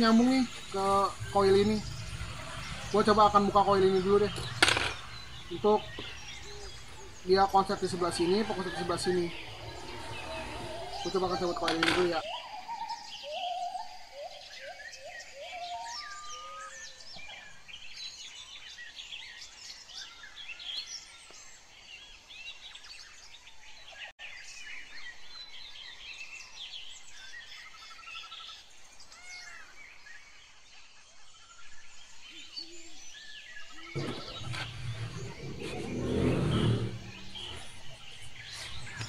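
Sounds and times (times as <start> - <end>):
low rushing noise: 0.0 - 12.2, 34.0 - 39.0
small birds chirping: 0.0 - 39.0.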